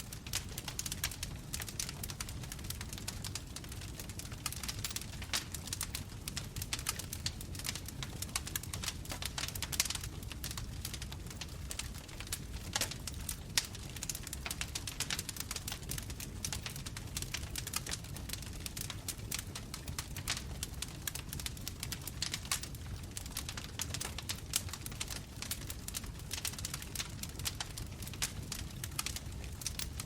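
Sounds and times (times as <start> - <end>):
bonfire crackling and popping: 0.0 - 30.0.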